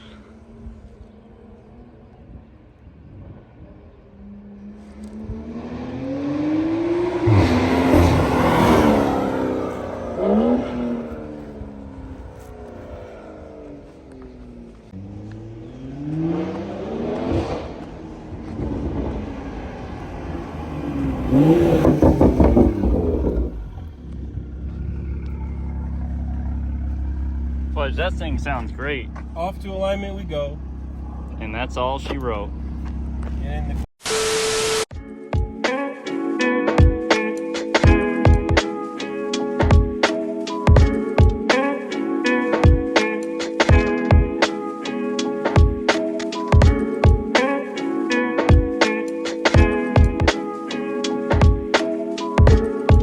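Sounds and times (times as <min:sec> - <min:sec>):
car engine accelerating hard: 0:03.0 - 0:34.8.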